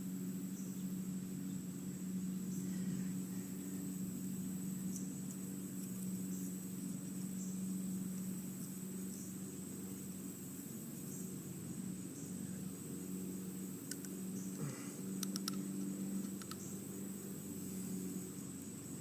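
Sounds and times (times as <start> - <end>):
steady low hum: 0.0 - 19.0
faint ticks: 13.8 - 16.7.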